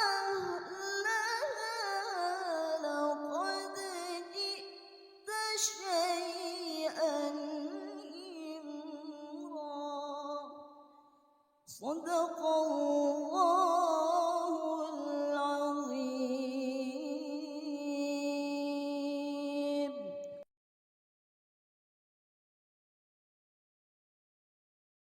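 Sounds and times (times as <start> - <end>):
woman reciting melodically: 0.0 - 4.7, 5.3 - 10.4, 11.7 - 20.4.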